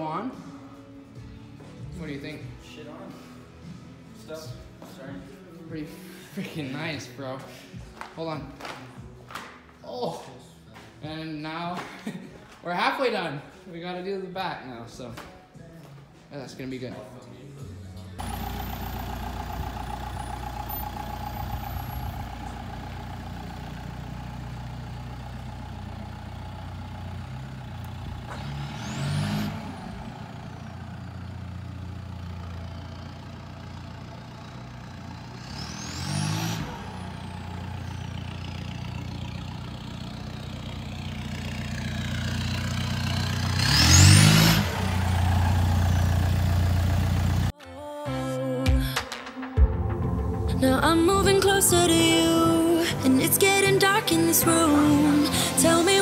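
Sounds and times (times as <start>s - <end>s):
car engine revving: 18.2s - 47.5s, 50.6s - 56.0s.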